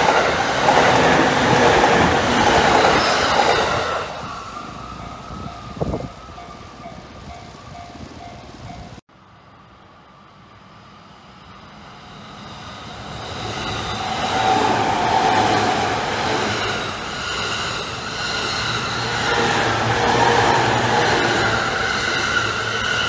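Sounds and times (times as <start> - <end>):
electric train passing: 0.0 - 23.0
crossing warning bell: 2.6 - 9.0.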